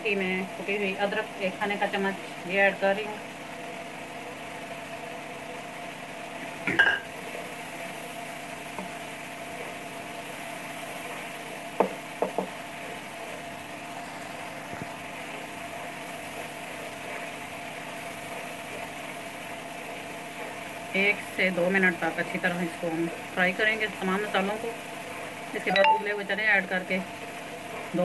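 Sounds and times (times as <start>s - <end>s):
masala sizzling in oil: 0.0s - 28.0s
spatula knocking on a pan: 11.8s - 12.6s.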